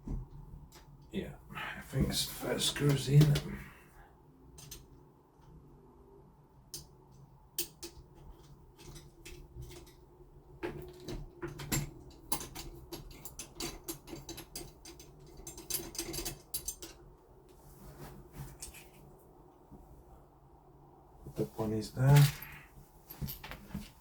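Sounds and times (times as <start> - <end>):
metallic clicks and knocks: 7.6 - 10.0, 10.6 - 17.0.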